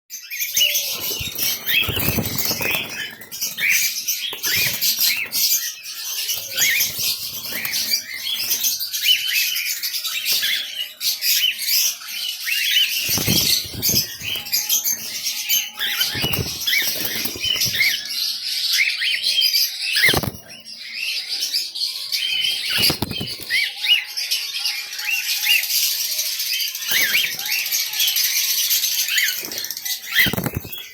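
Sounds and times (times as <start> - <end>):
small birds chirping and chattering: 0.1 - 30.9
wings fluttering: 0.6 - 9.0, 12.8 - 18.1, 20.0 - 20.6, 22.4 - 23.7, 29.1 - 30.9.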